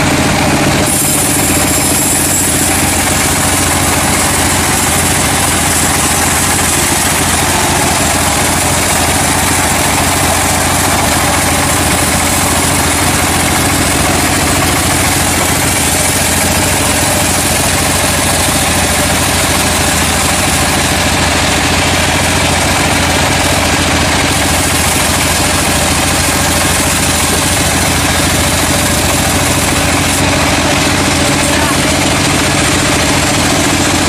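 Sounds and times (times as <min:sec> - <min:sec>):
sawmill machinery humming: 0:00.0 - 0:34.0.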